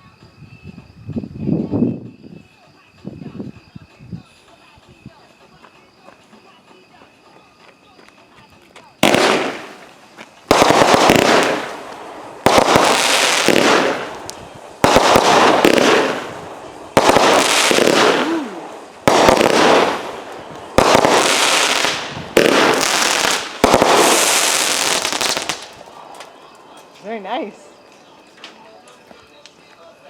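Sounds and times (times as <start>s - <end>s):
fireworks bangs with crackling: 7.8s - 29.7s.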